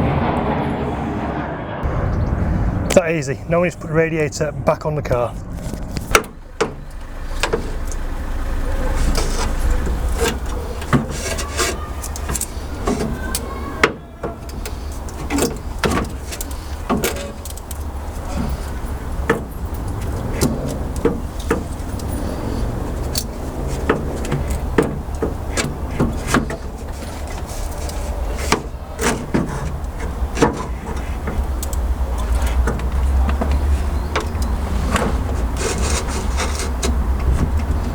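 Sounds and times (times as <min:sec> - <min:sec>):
steady low rumble: 0:00.0 - 0:11.1.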